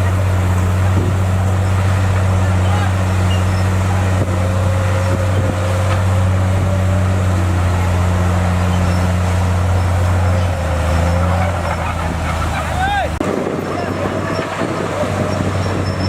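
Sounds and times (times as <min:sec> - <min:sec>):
bulldozer diesel engine running: 0:00.0 - 0:16.0.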